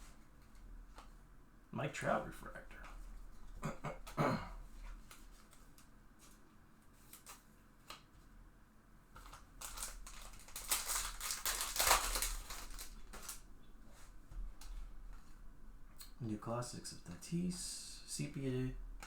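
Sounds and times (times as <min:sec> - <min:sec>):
foil pack crinkling: 0:07.0 - 0:07.5, 0:09.2 - 0:13.5.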